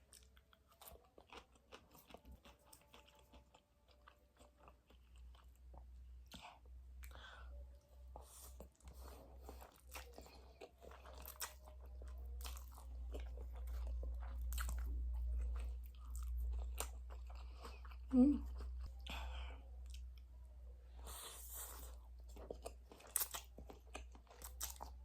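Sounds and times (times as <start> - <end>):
wet chewing of noodles: 0.0 - 7.5, 8.1 - 25.0
person humming: 18.1 - 18.4.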